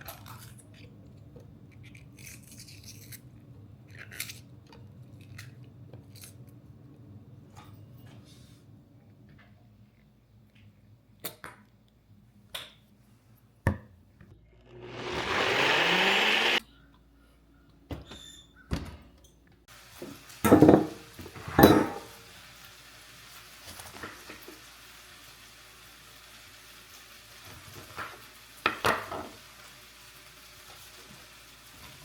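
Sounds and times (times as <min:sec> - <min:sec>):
rush of noise: 0:14.7 - 0:16.6.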